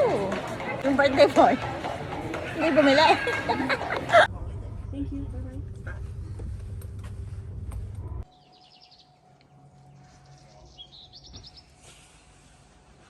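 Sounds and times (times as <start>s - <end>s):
loud low rumble: 4.3s - 8.3s.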